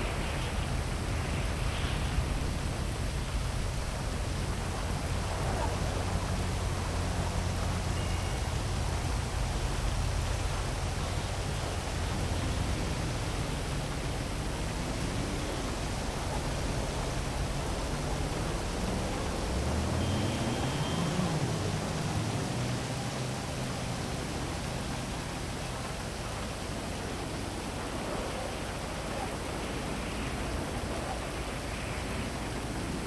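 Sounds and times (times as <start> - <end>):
city traffic rumble: 0.0 - 33.0
heavy rain: 0.0 - 33.0
vehicle passing: 11.2 - 26.0.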